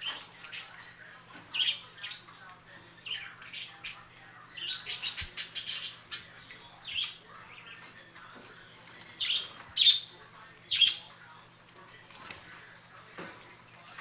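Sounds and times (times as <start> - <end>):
budgerigars chirping: 1.4 - 2.3, 3.0 - 8.0, 10.7 - 11.1.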